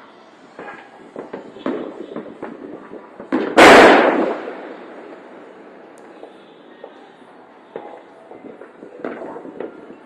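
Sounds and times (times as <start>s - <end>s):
firework pops and crackles: 0.5s - 5.3s, 7.7s - 10.0s
loud firework bang: 0.6s - 5.1s.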